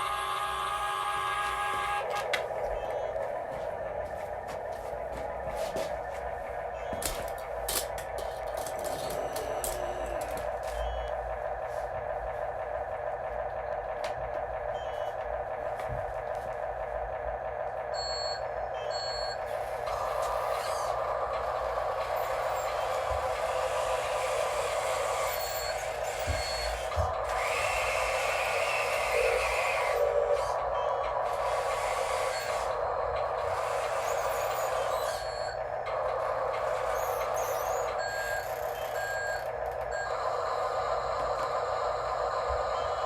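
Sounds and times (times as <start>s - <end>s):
small electric motors whining: 0.0s - 3.2s, 6.8s - 11.1s, 18.0s - 43.0s.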